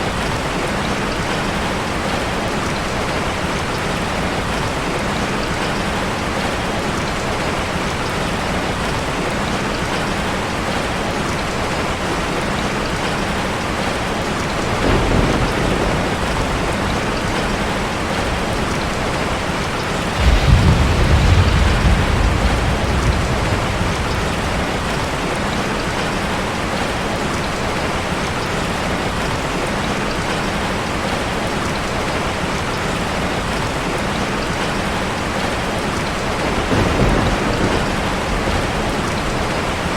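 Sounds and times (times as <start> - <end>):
heavy rain on a car: 0.0 - 39.9
thunder rumbling: 14.5 - 27.4, 36.2 - 39.9.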